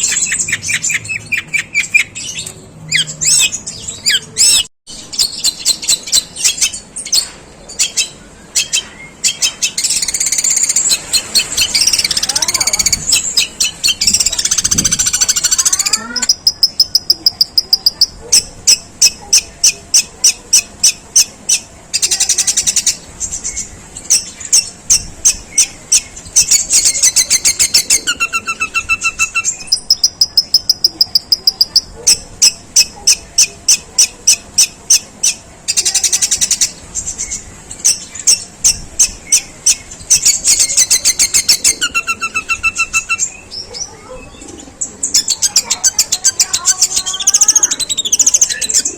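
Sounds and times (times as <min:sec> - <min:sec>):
bird chirping rapidly: 0:00.0 - 0:48.9.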